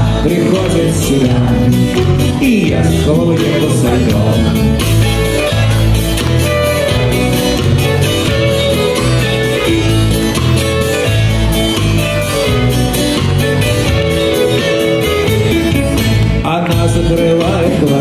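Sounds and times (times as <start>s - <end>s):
guitar: 0.0s - 18.0s
rock band playing: 0.0s - 18.0s
violin: 4.8s - 16.5s.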